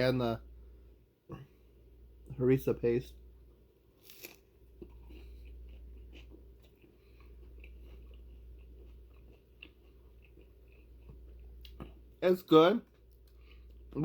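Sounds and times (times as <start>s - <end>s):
crunch of biting toasted sandwich: 4.0s - 12.0s
quiet chewing: 4.0s - 12.2s, 12.8s - 14.0s.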